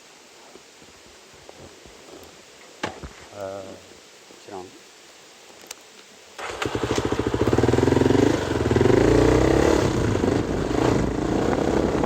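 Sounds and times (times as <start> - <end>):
motorcycle engine revving: 6.4 - 12.0.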